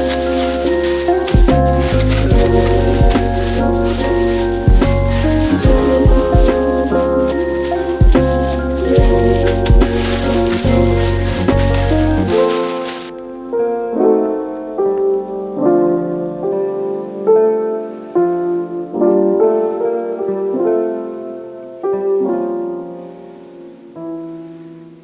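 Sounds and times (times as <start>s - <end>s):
slow solo piano: 0.0s - 25.0s.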